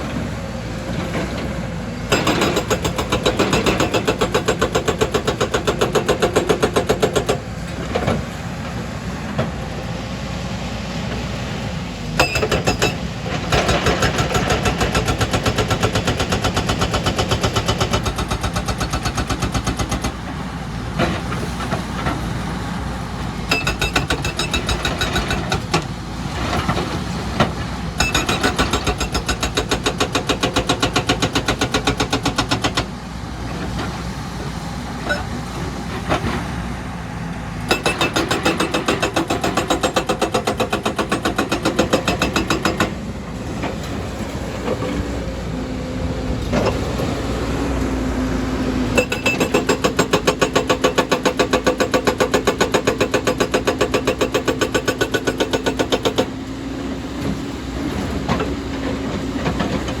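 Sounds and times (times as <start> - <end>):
diesel engine running: 0.0 - 60.0
hydraulic breaker hammering rock: 2.1 - 7.5, 12.2 - 20.2, 23.5 - 32.9, 37.7 - 43.0, 49.0 - 56.4.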